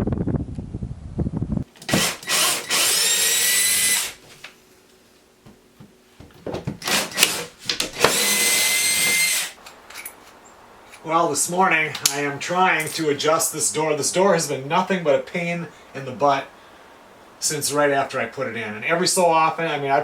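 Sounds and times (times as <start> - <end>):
power drill running: 1.8 - 4.2, 6.8 - 9.6
knocks: 5.4 - 6.8.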